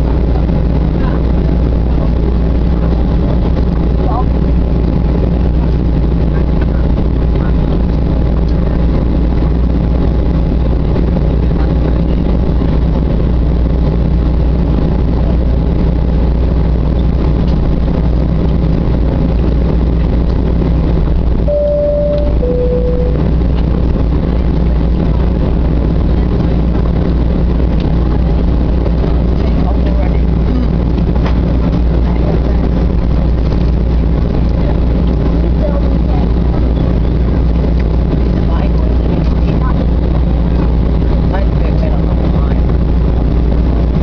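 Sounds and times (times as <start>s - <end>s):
airliner cabin engine noise: 0.0s - 44.0s
two-tone cabin chime: 21.5s - 23.3s.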